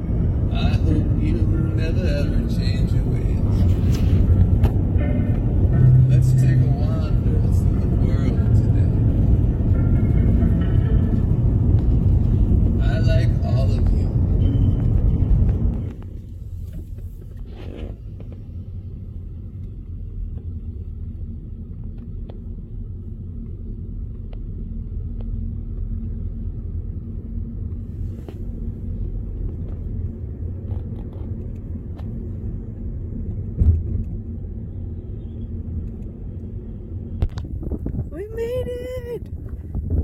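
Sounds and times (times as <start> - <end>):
car road rumble: 0.0 - 40.0
car bump: 33.5 - 34.2.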